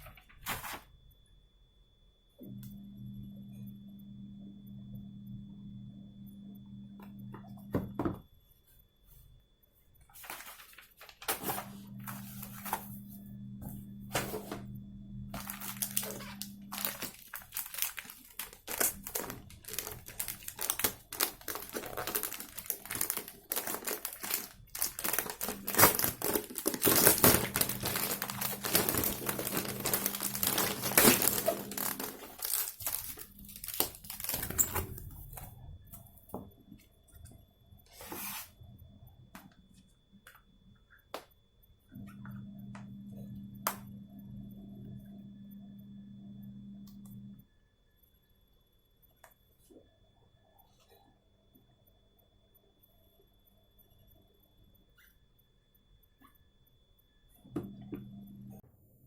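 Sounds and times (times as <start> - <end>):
packaging crinkling and tearing: 15.4 - 35.5.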